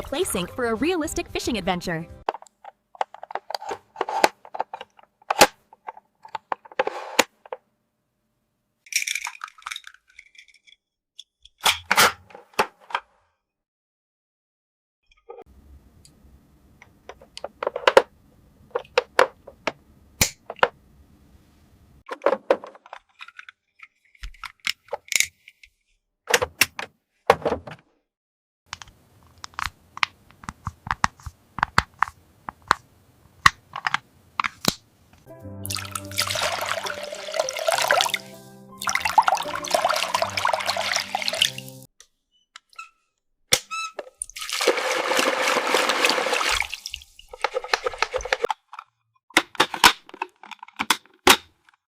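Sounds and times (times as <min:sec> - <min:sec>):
water running into toy sink: 0:35.6 - 0:41.9, 0:44.2 - 0:48.5.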